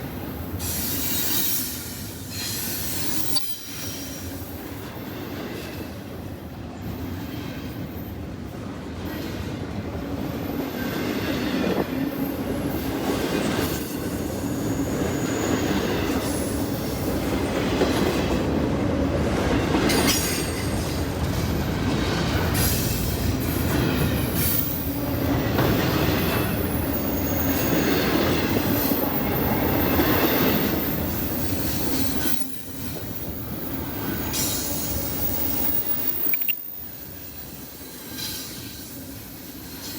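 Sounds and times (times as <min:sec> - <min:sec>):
railcar wheels clacking over joints: 0:19.1 - 0:39.9.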